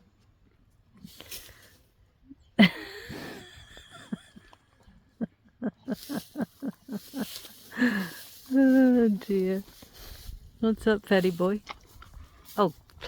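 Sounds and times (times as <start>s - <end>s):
short rhythmic laughs: 2.6s - 8.0s.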